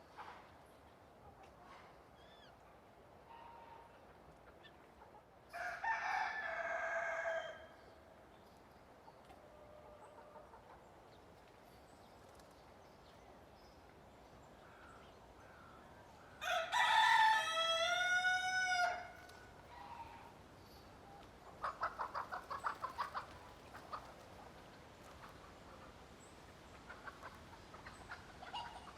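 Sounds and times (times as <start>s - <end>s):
rooster crowing: 5.5s - 7.7s, 16.4s - 19.2s
chicken clucking: 21.4s - 25.9s, 26.7s - 28.9s.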